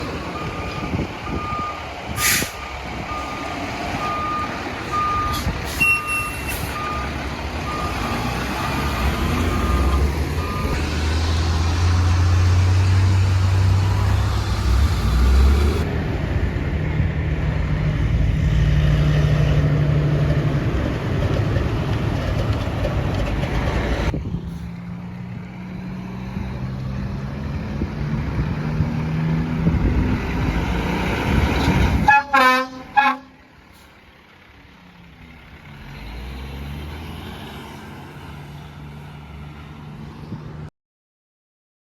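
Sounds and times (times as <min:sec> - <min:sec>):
reversing beeper: 0:04.0 - 0:10.8.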